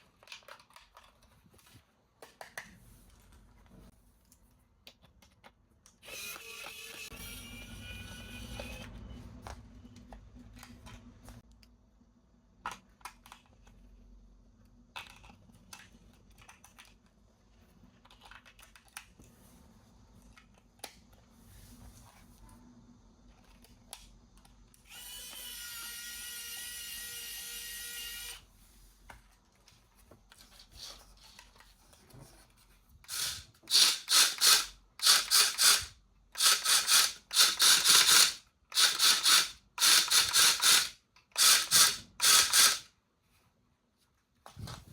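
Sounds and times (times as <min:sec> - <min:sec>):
clicks and rustles of handling: 0:00.0 - 0:06.0, 0:14.6 - 0:22.5, 0:29.0 - 0:33.1
toy electric motor and gearbox: 0:06.0 - 0:09.0, 0:24.8 - 0:28.4, 0:33.0 - 0:42.9
steady whirr: 0:33.1 - 0:42.9.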